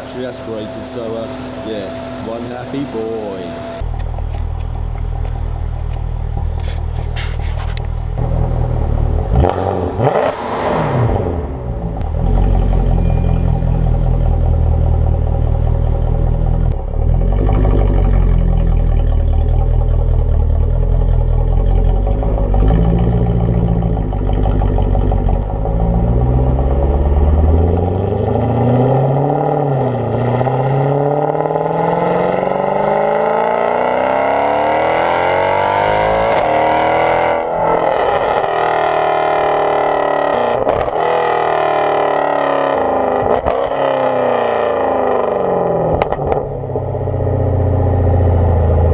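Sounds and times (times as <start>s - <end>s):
engine revving up: 0.0s - 3.9s, 8.2s - 13.6s, 22.0s - 46.4s
car exhaust low rumble: 0.0s - 10.2s, 10.8s - 36.5s, 43.2s - 48.9s.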